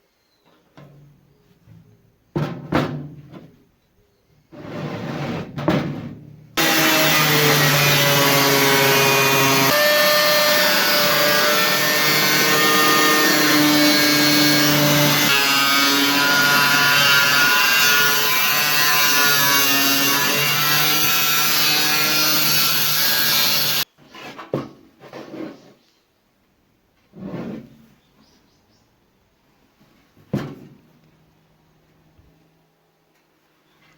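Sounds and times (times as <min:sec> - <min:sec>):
disc grinder cutting sheet steel: 0:06.6 - 0:23.8.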